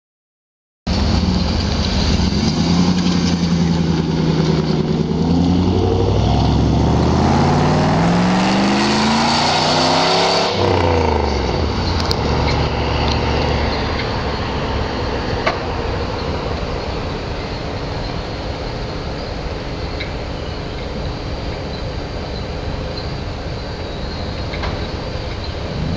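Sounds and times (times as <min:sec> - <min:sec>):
car engine revving and idling: 0:00.9 - 0:15.9, 0:25.6 - 0:25.9.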